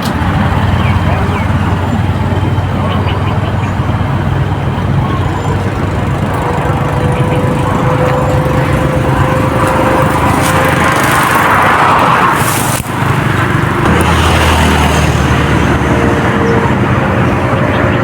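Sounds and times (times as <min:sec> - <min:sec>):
deep engine hum: 0:00.0 - 0:18.0
engines running: 0:00.0 - 0:18.0.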